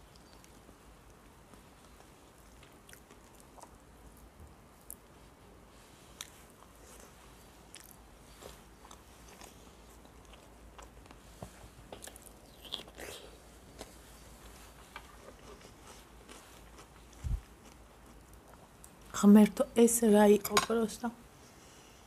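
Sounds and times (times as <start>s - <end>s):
person chewing with wet mouth clicks: 2.6s - 3.8s.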